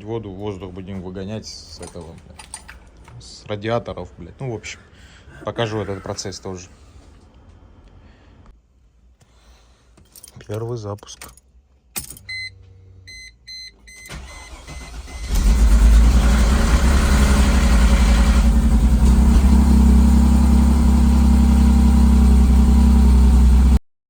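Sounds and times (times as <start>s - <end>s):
car engine running steadily: 15.4s - 23.8s.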